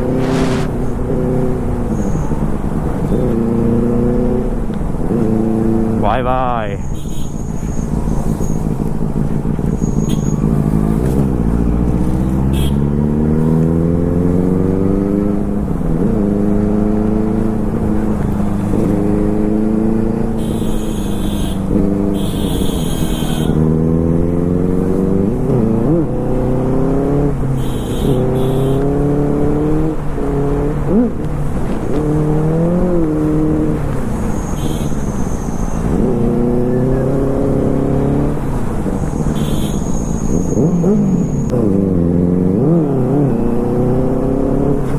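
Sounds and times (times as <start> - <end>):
superbike engine accelerating: 0.0 - 1.9, 7.9 - 20.4, 40.2 - 44.9
wind rumble: 0.0 - 2.8.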